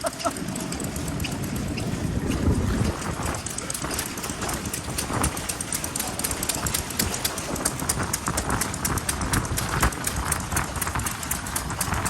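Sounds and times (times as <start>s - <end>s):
stationary engines clattering: 0.0s - 12.0s.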